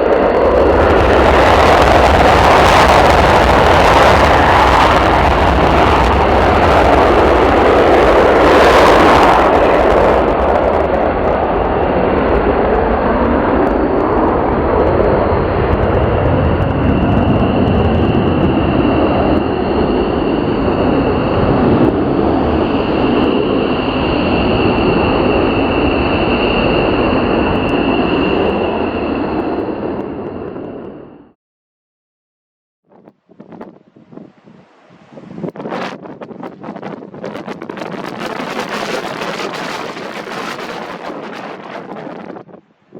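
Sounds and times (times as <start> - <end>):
jet engines running loud: 0.0 - 31.4, 33.4 - 42.9.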